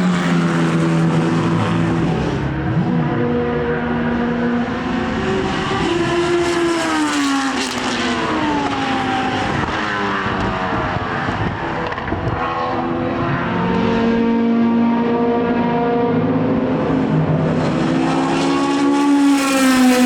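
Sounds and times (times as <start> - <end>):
racing car engines passing: 0.0 - 20.0.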